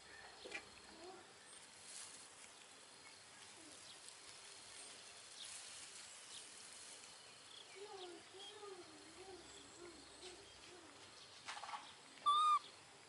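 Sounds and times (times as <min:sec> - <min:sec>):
faint bird chirps: 0:07.3 - 0:12.8.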